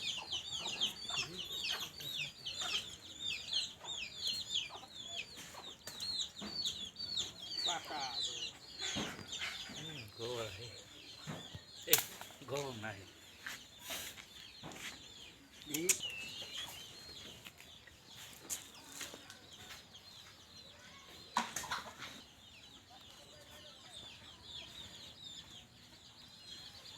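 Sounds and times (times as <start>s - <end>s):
chickens clucking: 0.0s - 26.9s
small birds chirping: 0.0s - 26.9s.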